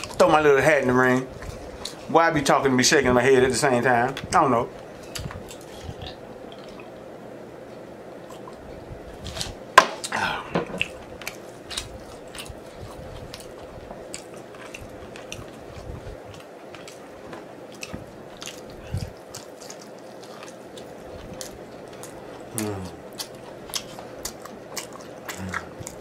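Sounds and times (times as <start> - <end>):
chewing with wet mouth clicks: 10.8 - 26.0.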